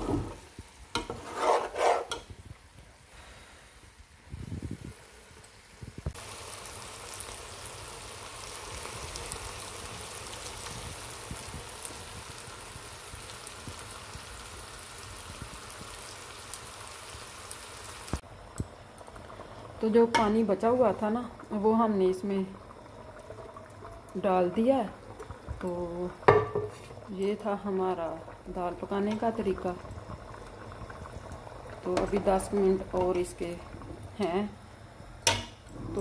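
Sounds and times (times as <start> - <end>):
spoon stirring in a pan: 0.0 - 2.3, 31.8 - 33.8
food sizzling in a pan: 0.0 - 36.0.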